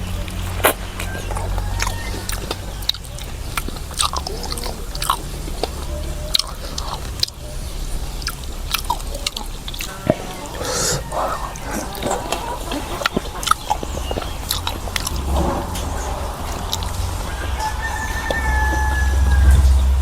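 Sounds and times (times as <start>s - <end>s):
steady low hum: 0.0s - 20.0s
person chewing food: 0.2s - 7.4s, 8.0s - 15.4s
wet mouth clicks: 8.2s - 9.9s, 10.6s - 15.9s.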